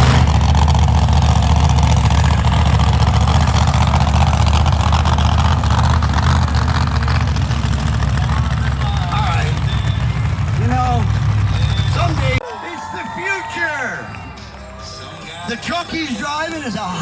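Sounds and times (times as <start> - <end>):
loud vehicle engine running: 0.0 - 12.4.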